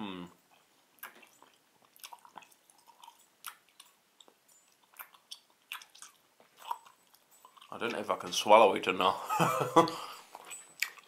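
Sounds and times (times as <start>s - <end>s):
mouth chewing sticky sweet: 0.2s - 8.2s, 9.9s - 11.0s.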